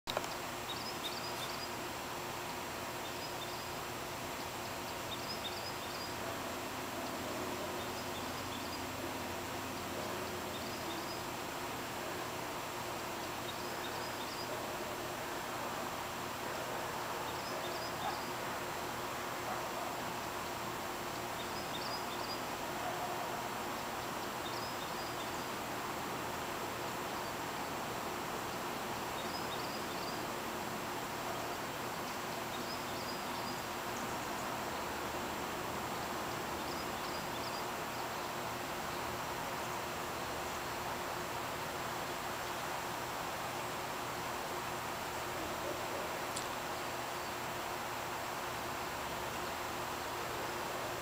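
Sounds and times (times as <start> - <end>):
outdoor background hiss: 0.0 - 51.0
small bird chirping: 0.1 - 1.8, 3.0 - 6.2, 29.1 - 30.3.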